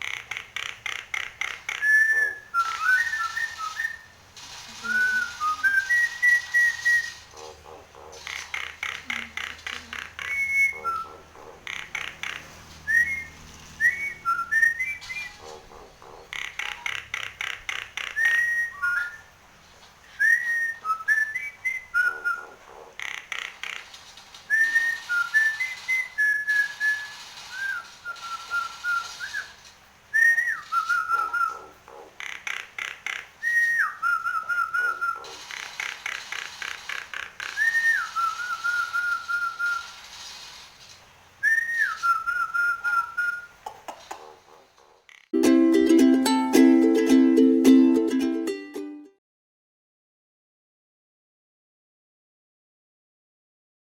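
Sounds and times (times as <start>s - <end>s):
bird rattling chatter: 0.0s - 12.8s, 22.0s - 45.3s
bird whistling and trilling: 1.7s - 4.2s, 4.8s - 7.3s, 8.8s - 12.2s, 12.8s - 15.5s, 18.0s - 19.3s, 20.1s - 22.6s, 24.5s - 31.7s, 33.4s - 35.4s, 37.4s - 40.0s, 41.4s - 43.6s.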